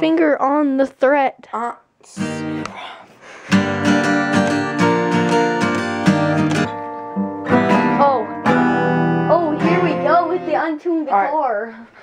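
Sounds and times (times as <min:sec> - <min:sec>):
acoustic guitar strumming chords: 0:02.2 - 0:02.8, 0:03.5 - 0:11.4.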